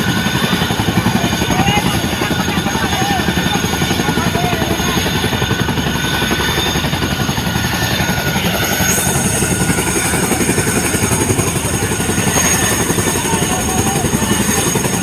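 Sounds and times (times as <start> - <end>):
helicopter rotor beat: 0.0 - 15.0
turbine whine: 0.0 - 15.0.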